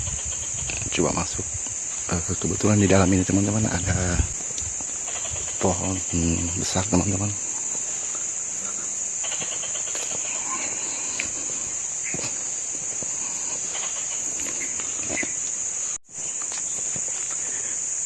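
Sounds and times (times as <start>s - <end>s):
insects shrilling: 0.0s - 18.0s
footsteps on ground: 9.9s - 15.6s.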